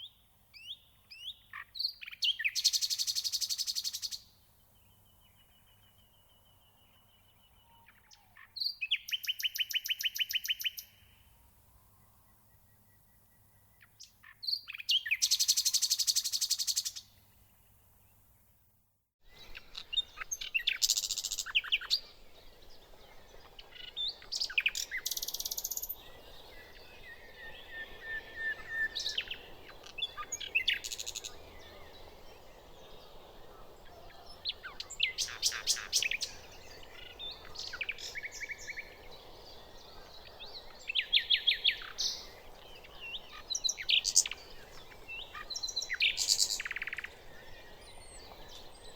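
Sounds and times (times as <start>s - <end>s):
nightingale singing: 4.9s - 11.0s, 19.3s - 48.9s.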